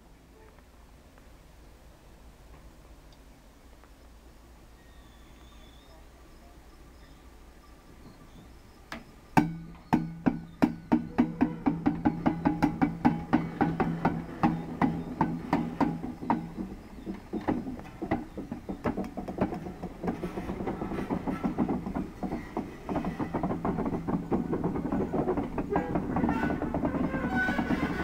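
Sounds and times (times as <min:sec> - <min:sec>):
train wheels clicking and clanking: 0:08.8 - 0:28.0.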